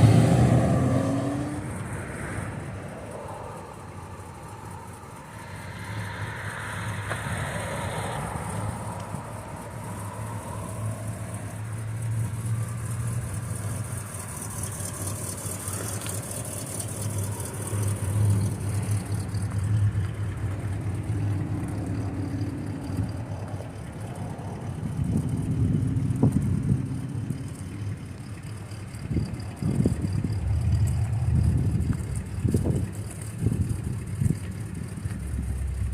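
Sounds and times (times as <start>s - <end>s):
car engine running: 0.0s - 35.9s.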